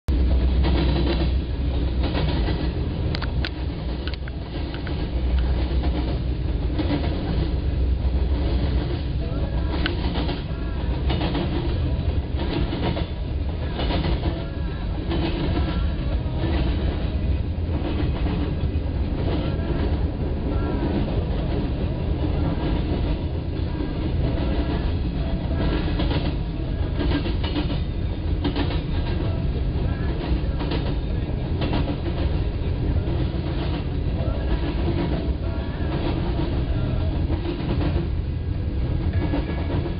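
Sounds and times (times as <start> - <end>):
freight train rumbling: 0.1 - 39.9
wheels clacking over rail joints: 0.4 - 29.4.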